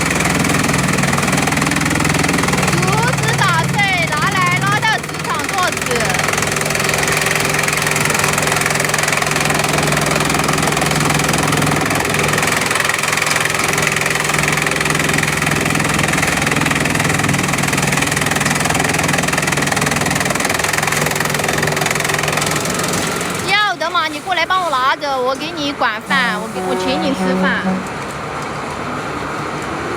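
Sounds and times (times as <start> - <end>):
chipping machine droning: 0.0 - 16.1.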